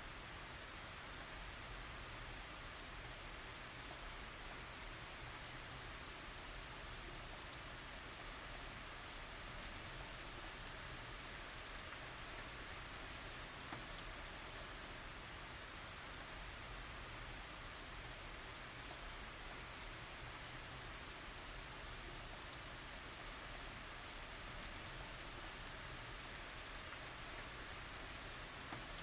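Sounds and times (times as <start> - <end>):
rain falling: 0.1 - 29.0.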